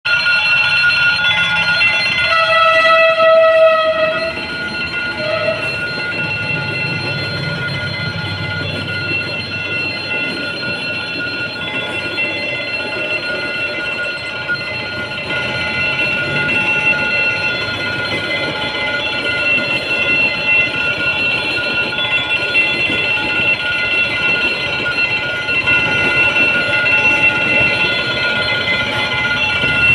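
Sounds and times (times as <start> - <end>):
high warning tone: 0.1 - 29.9
train rumbling past: 0.9 - 29.9
train horn: 2.2 - 4.4, 5.2 - 5.8.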